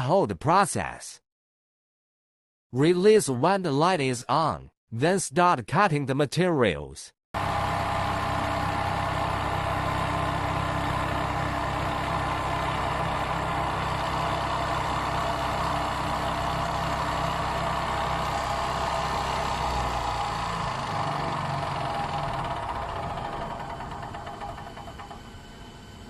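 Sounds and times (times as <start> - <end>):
foam cutter mechanical hum: 7.4 - 26.0.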